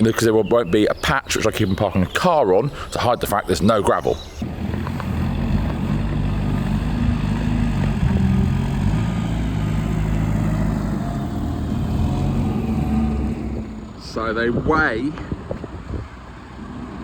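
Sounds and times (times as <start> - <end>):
van engine running: 4.4 - 14.1.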